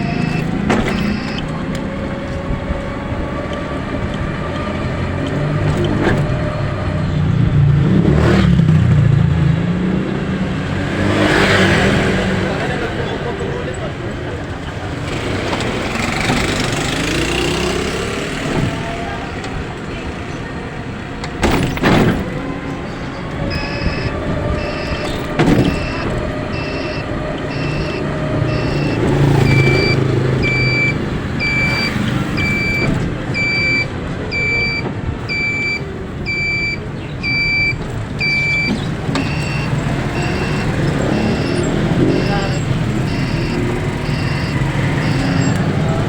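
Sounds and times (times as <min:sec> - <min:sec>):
electronic warning beep: 0:00.0 - 0:01.5, 0:23.5 - 0:45.9
vehicle running on road: 0:00.0 - 0:46.0
thumps: 0:23.5 - 0:33.8.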